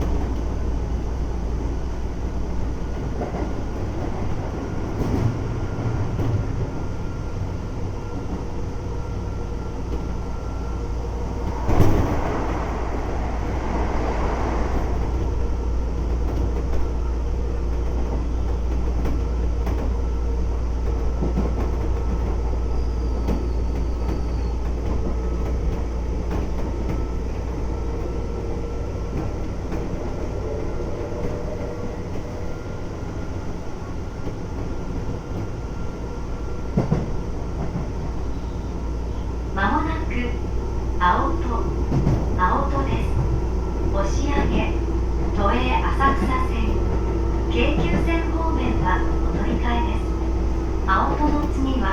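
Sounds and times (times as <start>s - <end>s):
train wheels rumbling on rail: 0.0s - 51.9s
loud rush of noise: 11.2s - 15.4s.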